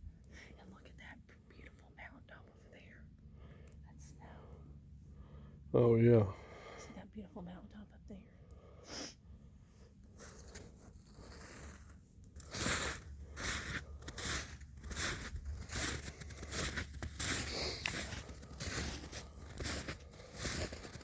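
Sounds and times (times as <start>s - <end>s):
footsteps crunching through snow: 10.2s - 21.0s.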